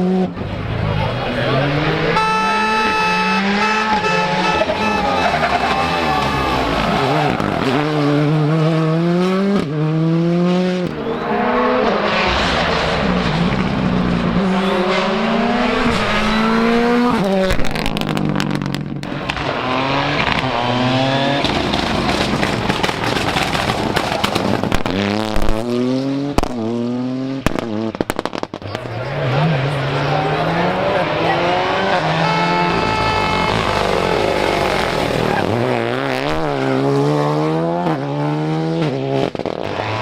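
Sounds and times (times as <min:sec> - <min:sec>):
rally car engine revving: 0:00.0 - 0:40.0
sharp cracks: 0:21.4 - 0:25.6.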